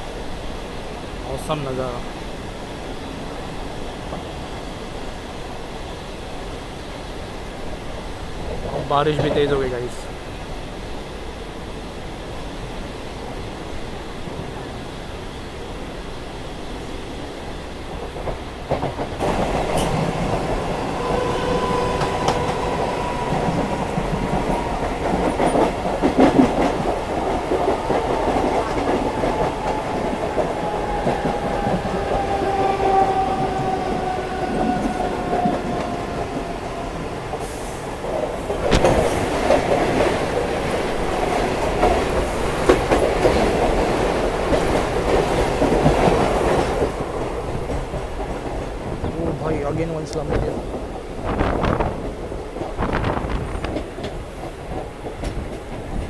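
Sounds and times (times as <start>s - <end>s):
passing train clatter: 0.0s - 56.0s
train rumbling at speed: 0.0s - 56.0s.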